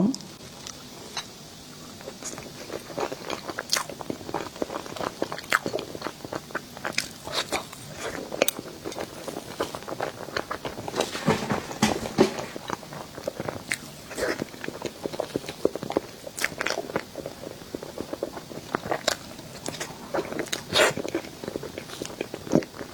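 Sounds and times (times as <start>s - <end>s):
person biting and chewing: 2.1s - 10.8s.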